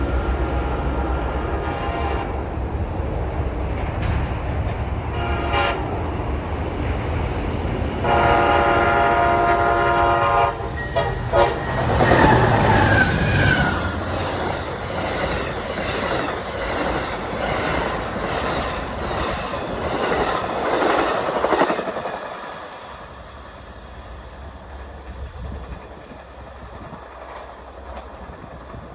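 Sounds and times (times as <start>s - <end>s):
train air horn blasts: 1.4s - 2.4s, 5.1s - 5.9s, 8.0s - 14.2s
train wheels clacking on rails: 3.3s - 28.9s.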